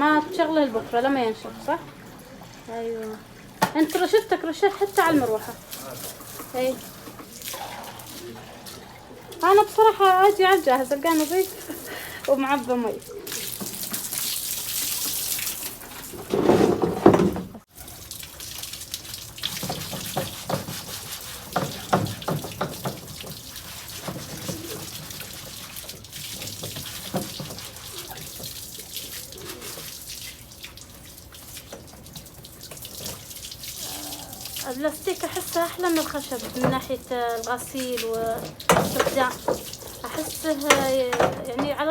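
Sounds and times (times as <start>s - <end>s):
water splashing on floor: 0.0s - 41.9s
hose water spraying: 2.4s - 41.9s.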